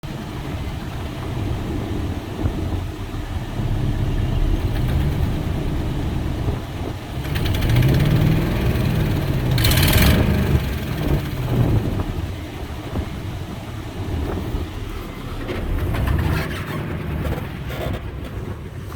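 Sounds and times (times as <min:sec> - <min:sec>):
car engine revving: 0:01.9 - 0:13.2.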